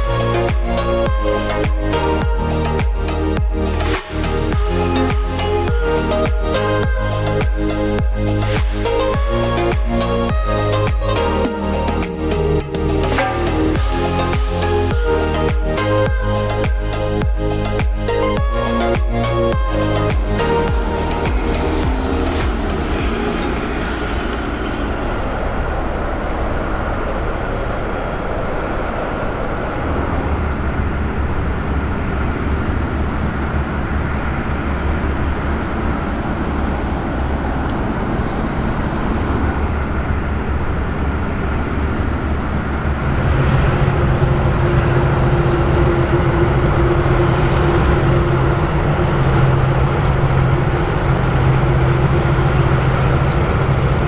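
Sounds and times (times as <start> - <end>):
steady hum: 0.0 - 54.0
aircraft engines droning: 18.2 - 54.0.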